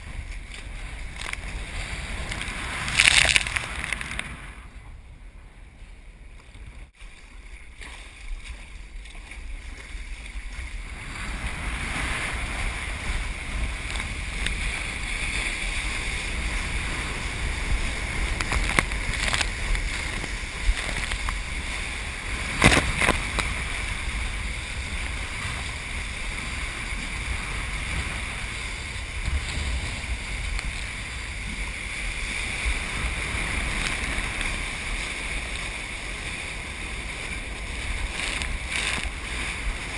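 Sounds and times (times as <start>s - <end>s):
surf breaking: 0.0s - 4.7s, 7.0s - 39.9s
wind buffeting microphone: 0.0s - 39.9s.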